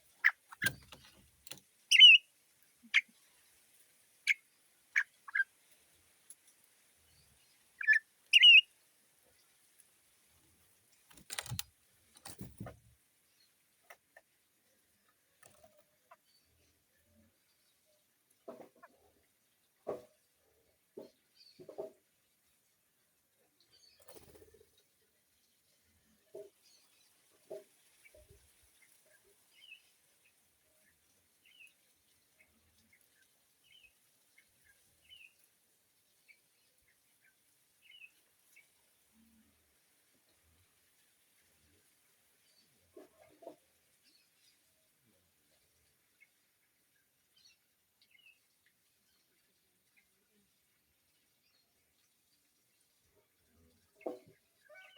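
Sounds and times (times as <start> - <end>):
bird calls: 0.2 - 1.0, 1.9 - 2.2, 5.0 - 5.5, 7.8 - 8.6.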